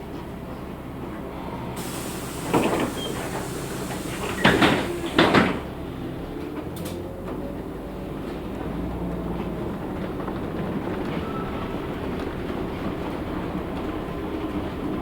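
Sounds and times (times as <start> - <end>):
bus engine rumble: 0.0 - 15.0
bus door thuds: 1.8 - 5.8
bus doors hissing: 1.8 - 6.0.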